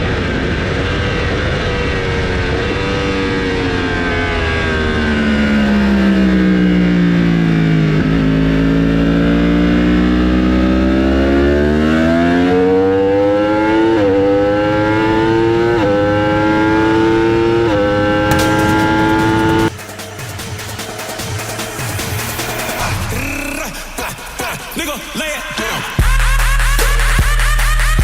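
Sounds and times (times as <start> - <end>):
racing motorcycle engine revving: 0.0 - 19.7.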